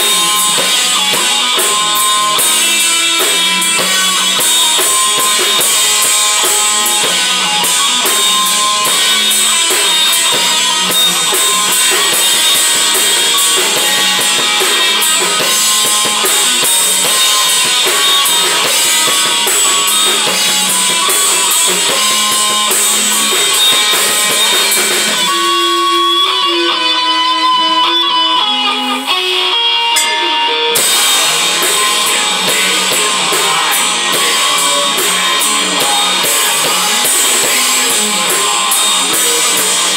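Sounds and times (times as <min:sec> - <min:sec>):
drum kit: 0:00.0 - 0:39.9
strummed electric guitar: 0:00.0 - 0:39.9.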